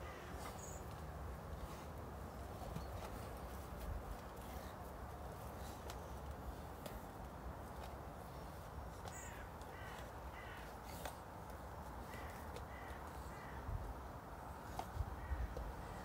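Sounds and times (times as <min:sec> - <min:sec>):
distant bird calling: 0:00.0 - 0:03.5, 0:07.7 - 0:13.7, 0:14.7 - 0:16.0.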